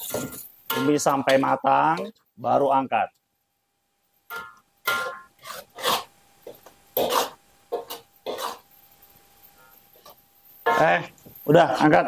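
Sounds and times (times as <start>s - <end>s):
metal spatula scraping a wok: 0.0s - 1.6s, 4.3s - 11.0s.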